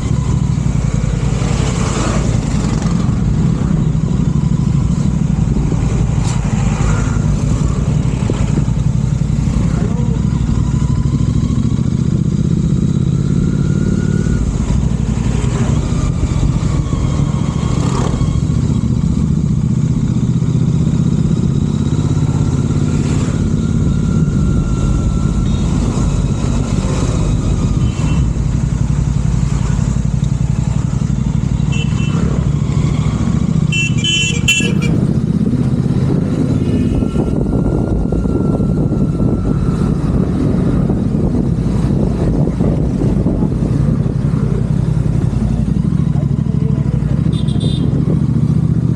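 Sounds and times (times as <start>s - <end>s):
motorcycle engine running: 0.0s - 48.9s
horn sounding: 31.6s - 32.4s, 33.7s - 35.1s, 36.5s - 37.4s, 47.2s - 48.0s.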